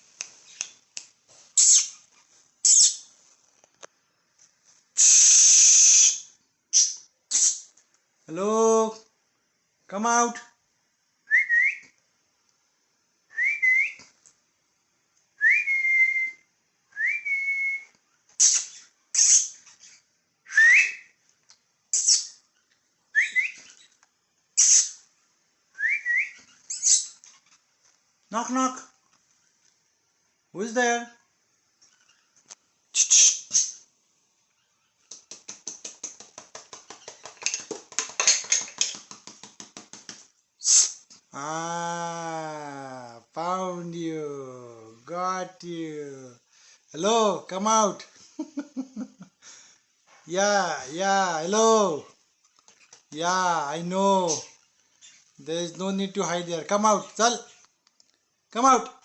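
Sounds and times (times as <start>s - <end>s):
short hissing sounds: 0.0s - 3.2s, 4.8s - 7.8s, 18.3s - 20.1s, 24.6s - 25.1s, 32.9s - 33.9s, 40.6s - 41.2s
person whistling: 13.3s - 14.0s, 15.4s - 16.4s, 17.0s - 17.9s, 20.5s - 21.1s, 25.8s - 26.4s
rapid light tapping: 35.0s - 40.4s.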